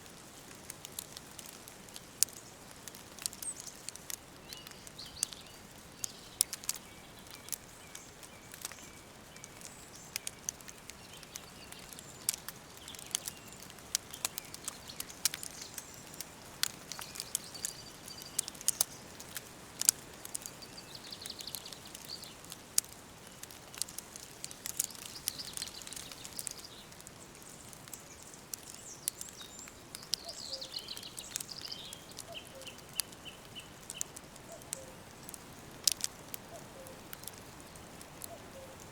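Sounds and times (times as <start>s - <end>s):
sharp crackles: 0.0s - 38.9s
steady hiss: 0.0s - 38.9s
birds singing and calling: 3.2s - 19.1s, 20.4s - 22.6s, 23.3s - 35.1s.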